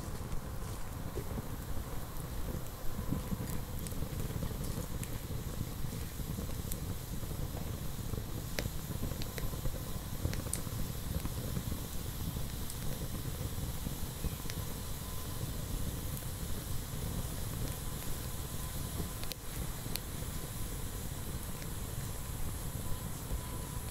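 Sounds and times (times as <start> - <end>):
campfire crackling and popping: 0.0 - 23.9.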